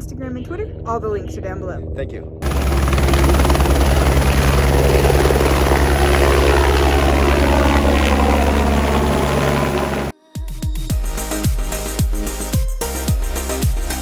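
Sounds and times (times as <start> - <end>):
helicopter rotor pulse: 2.4 - 10.1
dance music with kick drums: 10.2 - 14.0.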